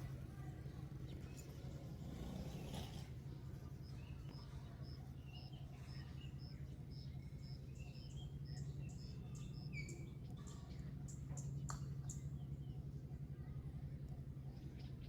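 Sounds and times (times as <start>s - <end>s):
faint chirps: 0.0s - 15.0s
steady low hum: 0.0s - 15.0s.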